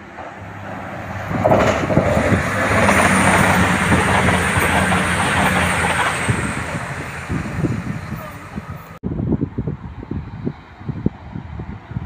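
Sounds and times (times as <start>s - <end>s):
wheels clattering over rails: 0.0s - 8.6s
train engine hum: 0.0s - 9.0s.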